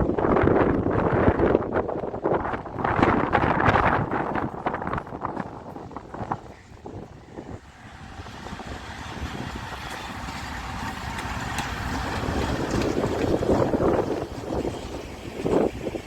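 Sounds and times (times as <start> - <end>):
freight train rumbling: 0.0 - 16.0.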